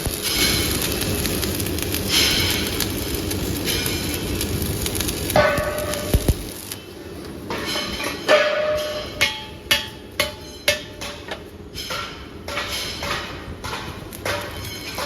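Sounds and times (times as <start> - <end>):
hammer striking steel: 5.4 - 6.2, 7.5 - 15.0.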